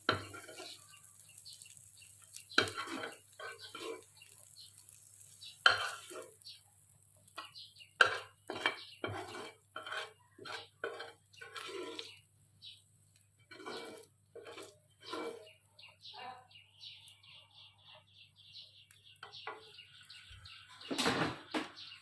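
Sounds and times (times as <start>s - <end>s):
utensils clinking on dishes: 0.0s - 1.0s, 2.6s - 4.1s, 5.6s - 6.4s, 7.4s - 12.1s.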